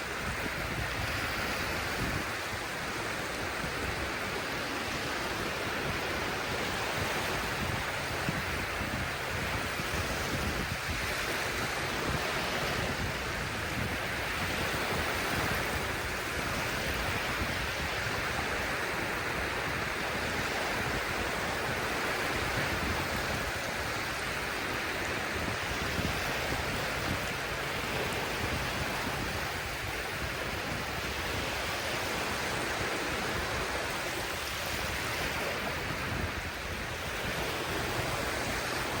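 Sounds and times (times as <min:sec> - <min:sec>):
sea surf washing onto shore: 0:00.0 - 0:39.0.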